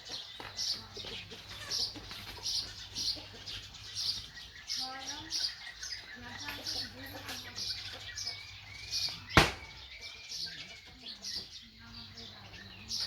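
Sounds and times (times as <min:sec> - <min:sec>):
sharp loud knock: 0:09.4 - 0:09.8.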